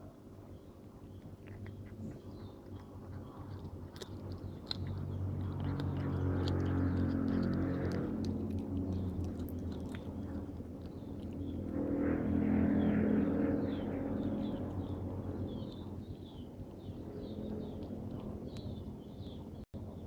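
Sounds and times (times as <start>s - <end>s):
cat chewing and crunching: 0.0s - 20.0s.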